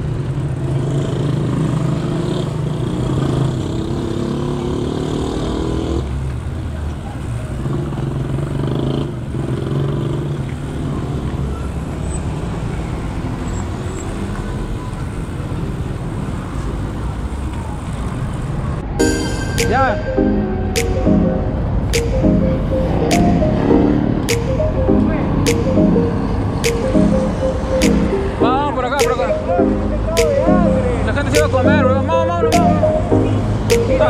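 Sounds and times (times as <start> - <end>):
vehicle engine humming: 19.1 - 34.0.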